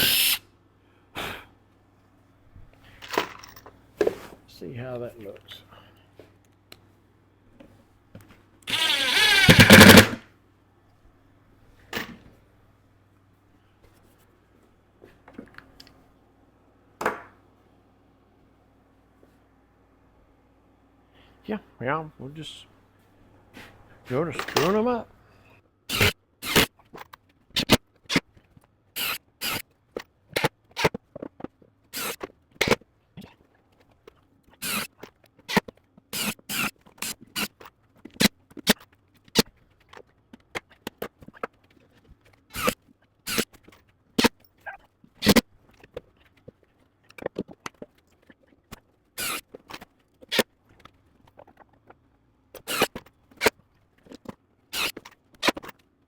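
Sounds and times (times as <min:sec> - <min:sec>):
screws driven into wood: 0:00.0 - 0:00.4, 0:08.7 - 0:10.2, 0:25.9 - 0:26.7, 0:29.0 - 0:29.6, 0:32.0 - 0:32.8, 0:34.6 - 0:37.6, 0:42.5 - 0:43.6, 0:49.2 - 0:49.5, 0:52.6 - 0:53.5, 0:54.7 - 0:55.6
impact driver motor whine: 0:08.7 - 0:10.2
impact driver rapid hammering: 0:08.7 - 0:10.2.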